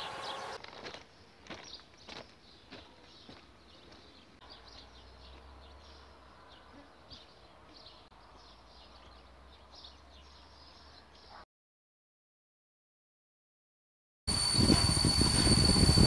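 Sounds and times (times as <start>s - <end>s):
small birds chirping: 0.0s - 11.4s.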